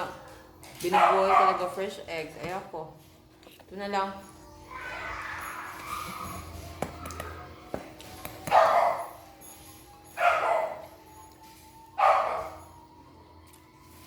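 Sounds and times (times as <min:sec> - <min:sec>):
quiet background music: 0:00.0 - 0:14.0
dog barking: 0:00.8 - 0:01.8, 0:08.5 - 0:09.1, 0:10.2 - 0:10.8, 0:12.0 - 0:12.6.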